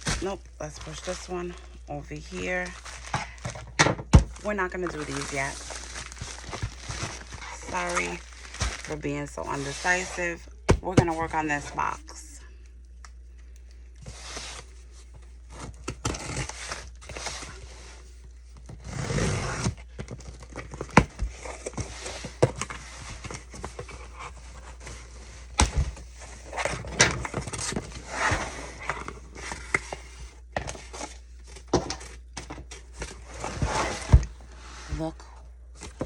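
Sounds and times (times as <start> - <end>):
steady low hum: 0.0 - 36.0
packaging crinkling: 2.2 - 10.0
cardboard scraping and rustling: 2.2 - 11.4, 14.0 - 36.0.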